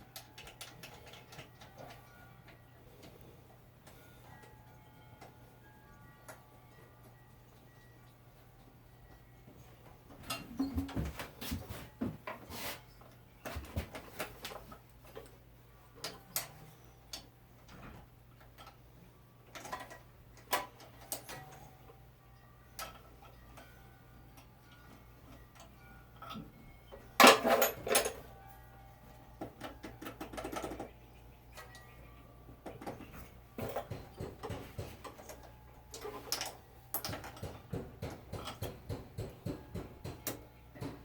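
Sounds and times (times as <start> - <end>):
hand tools clanking on metal: 27.2 - 28.2.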